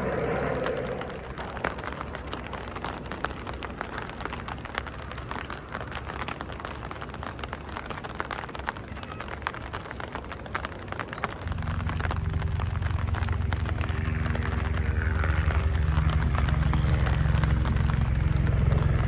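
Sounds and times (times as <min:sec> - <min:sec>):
raindrops ticking close by: 0:00.0 - 0:19.0
steady rain: 0:00.0 - 0:19.0.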